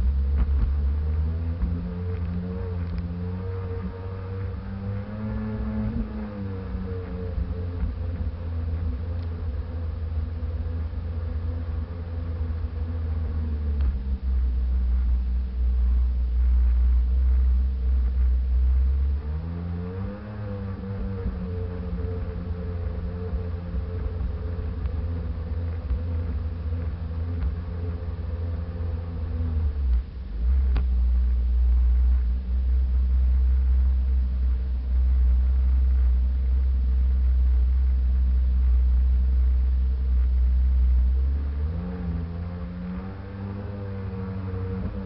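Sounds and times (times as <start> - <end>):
heavy low rumble: 0.0 - 45.0
watercraft engine running: 20.6 - 41.6.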